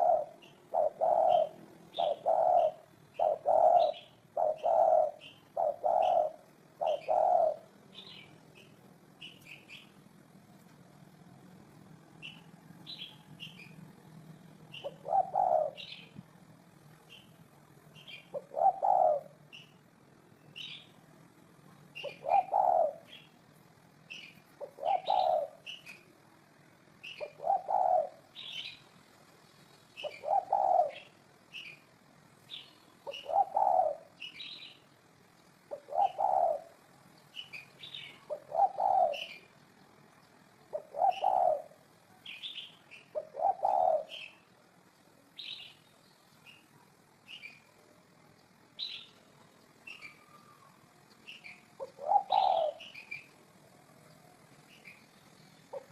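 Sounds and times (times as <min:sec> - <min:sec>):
dove cooing: 0:00.0 - 0:08.7, 0:14.7 - 0:16.2, 0:18.0 - 0:19.8, 0:21.9 - 0:23.4, 0:24.1 - 0:26.1, 0:27.0 - 0:28.8, 0:30.0 - 0:31.8, 0:32.5 - 0:34.8, 0:35.6 - 0:44.8, 0:49.9 - 0:55.0, 0:55.6 - 0:55.9
small birds chirping: 0:00.0 - 0:55.9.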